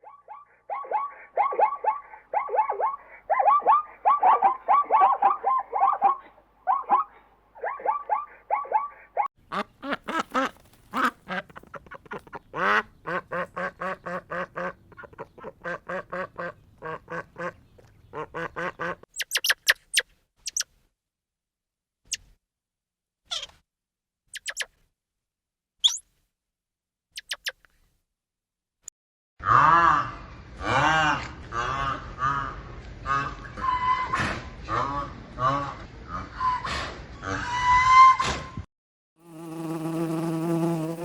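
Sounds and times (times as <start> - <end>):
ducks quacking: 8.3 - 19.1
high thin chirps: 19.2 - 20.7, 24.3 - 24.7, 25.8 - 26.0, 27.2 - 27.6.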